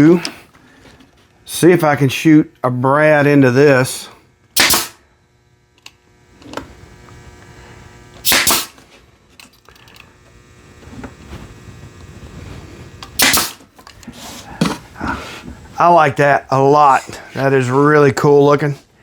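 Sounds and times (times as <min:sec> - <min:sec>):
nail gun firing: 0:04.6 - 0:05.0, 0:08.2 - 0:08.8, 0:13.2 - 0:13.7.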